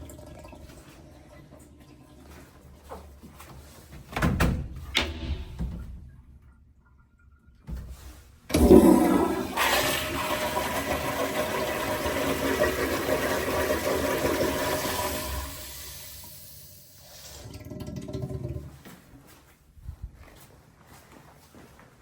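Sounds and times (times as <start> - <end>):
toilet flushing: 0.0 - 3.3, 4.9 - 18.8
toilet click: 4.2 - 6.4.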